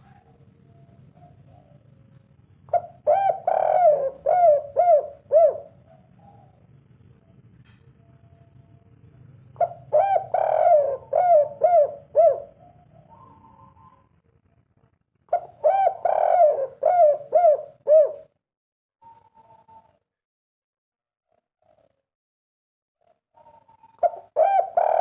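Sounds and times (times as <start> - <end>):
dove cooing: 0.0 - 1.9, 2.7 - 6.8, 9.6 - 14.2, 15.3 - 18.4, 23.4 - 25.0.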